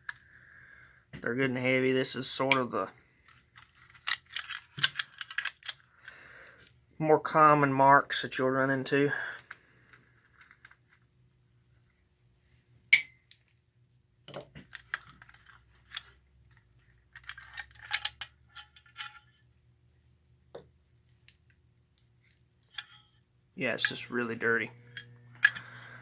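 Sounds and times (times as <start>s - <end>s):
toy locomotive parts clicking: 3.3s - 5.8s, 14.7s - 19.2s.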